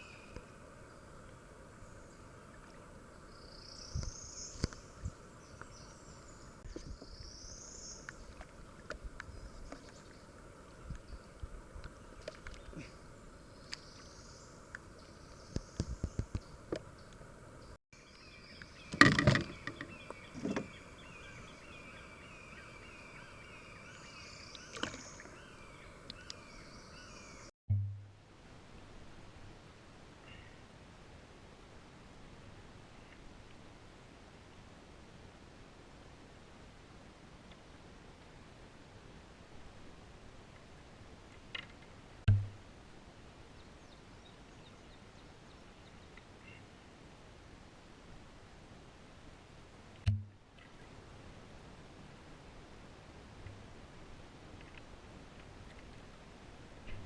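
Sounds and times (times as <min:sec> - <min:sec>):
faint steady background noise: 0:00.0 - 0:57.0
paddle knocks and splashes: 0:18.9 - 0:20.8.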